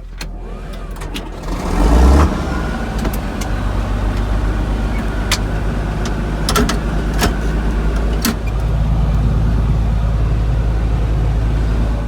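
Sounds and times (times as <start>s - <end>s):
engine running: 0.0s - 12.0s
sharp clicks: 2.9s - 8.7s.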